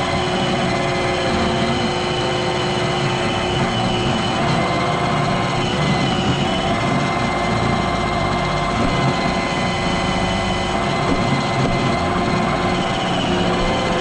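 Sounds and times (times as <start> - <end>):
robot vacuum running: 0.0 - 14.0.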